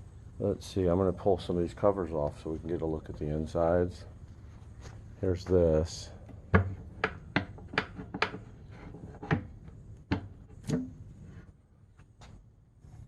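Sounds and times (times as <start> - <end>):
sharp knocks and clicks: 6.5 - 8.5, 9.1 - 11.0.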